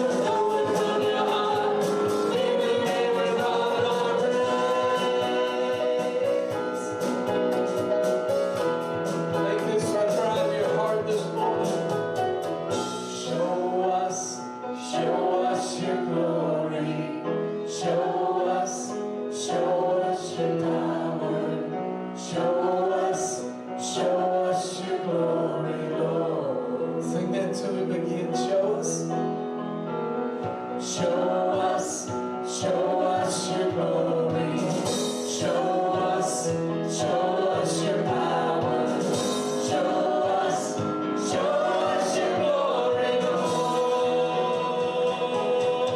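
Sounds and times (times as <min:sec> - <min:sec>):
group singing a hymn: 0:00.0 - 0:28.0, 0:30.8 - 0:45.9.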